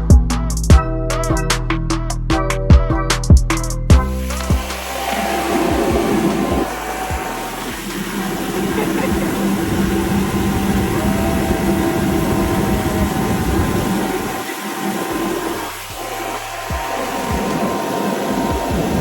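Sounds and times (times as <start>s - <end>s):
motor running: 3.9s - 19.0s
steady hum tones: 3.9s - 19.0s
loud rushing noise: 4.2s - 19.0s.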